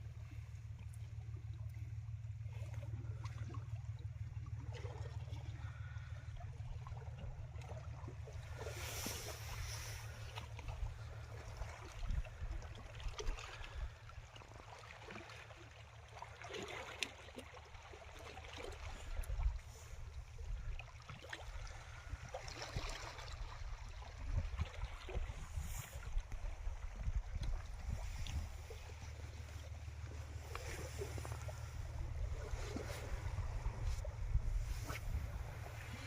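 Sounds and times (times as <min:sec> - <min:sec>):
steady low rumble: 0:00.0 - 0:14.9, 0:17.7 - 0:36.0
water lapping and splashing: 0:00.0 - 0:36.0.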